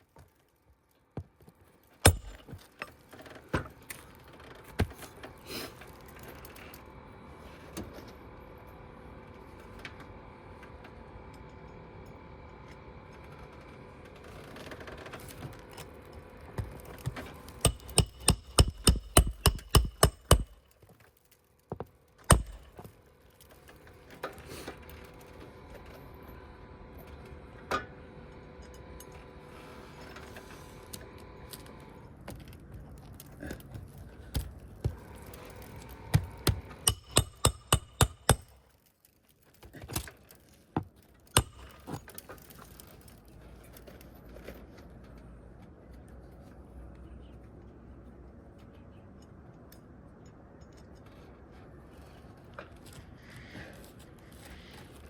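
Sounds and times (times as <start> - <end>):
hammer driving nails into shingles: 2.0 - 2.8, 16.6 - 20.9, 22.3 - 22.9, 34.3 - 38.6, 41.4 - 42.2.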